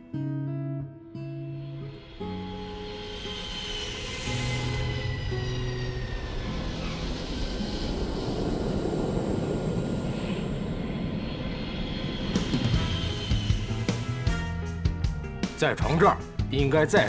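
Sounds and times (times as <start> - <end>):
airplane passing overhead: 1.9 - 15.5.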